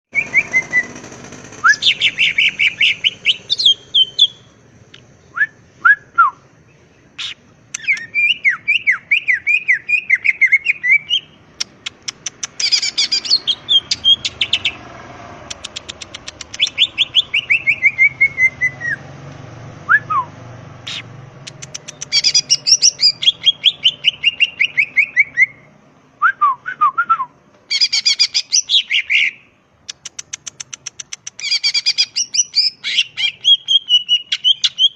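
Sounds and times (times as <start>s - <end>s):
bird whistling song: 0.1s - 1.0s, 1.6s - 6.4s, 7.2s - 14.8s, 15.6s - 19.1s, 19.9s - 34.9s
bird ticking rattles: 0.2s - 4.2s, 11.6s - 17.7s, 20.9s - 23.6s, 29.9s - 31.6s.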